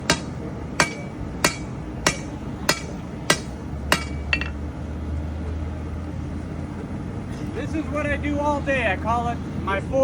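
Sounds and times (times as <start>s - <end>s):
hammer striking steel on anvil: 0.0s - 4.6s.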